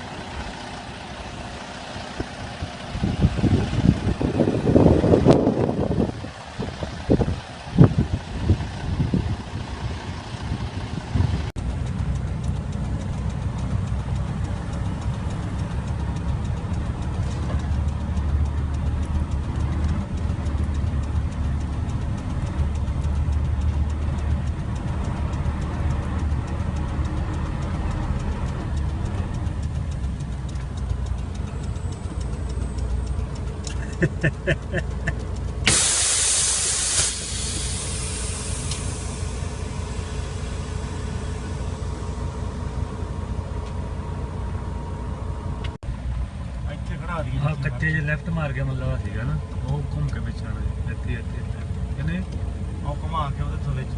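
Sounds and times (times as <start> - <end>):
truck engine drone: 0.0 - 53.9
air brake hiss: 35.6 - 40.6.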